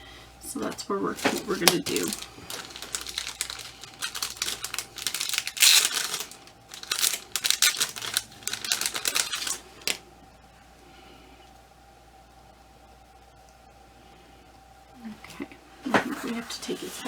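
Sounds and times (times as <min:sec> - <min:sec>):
doll and clothing rustling: 0:00.5 - 0:10.0.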